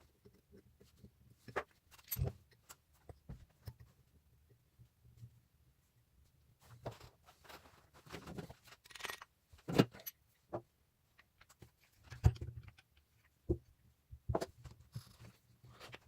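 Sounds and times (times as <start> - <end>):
metal parts clinking: 8.8 - 10.2.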